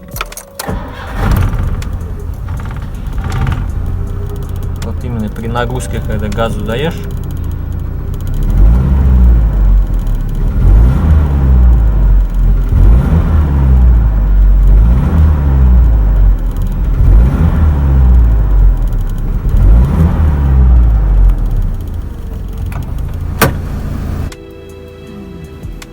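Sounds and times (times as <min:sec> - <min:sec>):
engine revving: 0:00.6 - 0:24.3
piston knock: 0:22.3 - 0:23.8.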